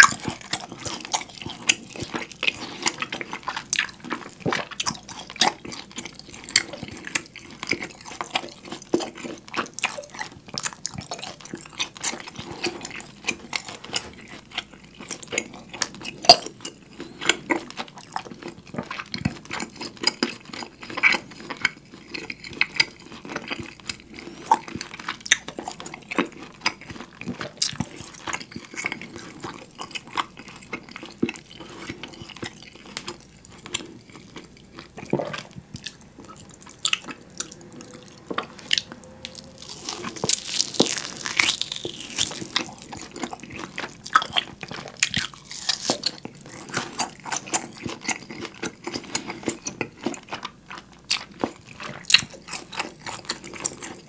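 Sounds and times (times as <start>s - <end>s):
wet chewing with smacking: 0.0s - 54.0s
meat tearing: 38.6s - 54.0s.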